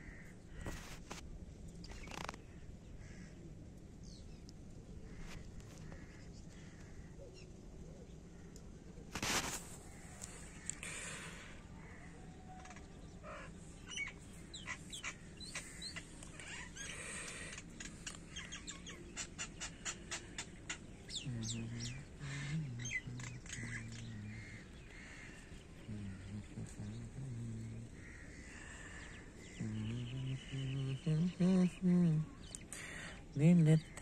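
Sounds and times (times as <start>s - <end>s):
birds chirping: 9.7s - 34.0s
low voice: 21.2s - 24.7s, 25.8s - 28.2s, 29.4s - 34.0s.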